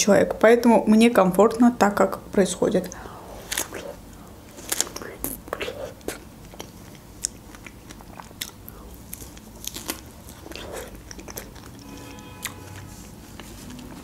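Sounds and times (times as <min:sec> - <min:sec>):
person chewing strawberries: 0:02.8 - 0:14.0.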